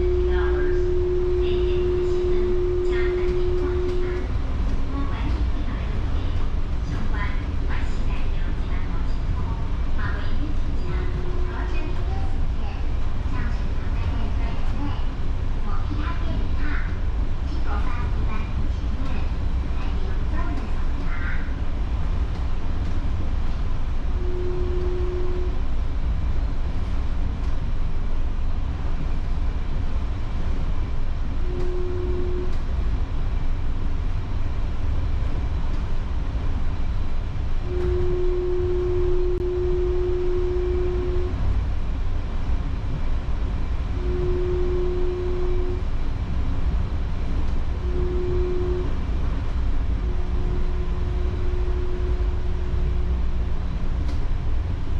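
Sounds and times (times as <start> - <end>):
steady hum tone: 0.0 - 54.9
train rumbling on board: 0.0 - 54.9.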